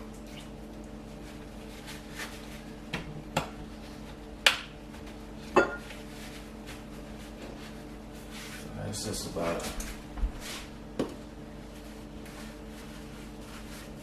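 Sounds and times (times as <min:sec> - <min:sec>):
steady low hum: 0:00.0 - 0:14.0
kitchenware clattering: 0:05.5 - 0:05.9.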